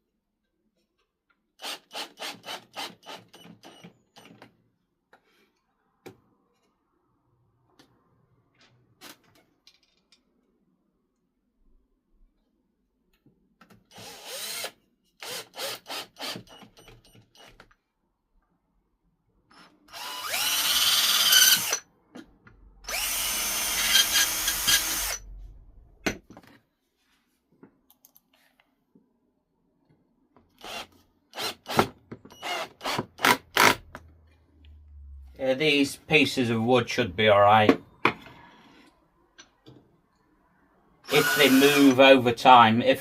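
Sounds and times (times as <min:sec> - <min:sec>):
power drill on wood: 0:01.6 - 0:04.4, 0:13.9 - 0:17.7, 0:19.5 - 0:21.9, 0:22.8 - 0:25.2, 0:30.5 - 0:34.0, 0:41.0 - 0:42.0.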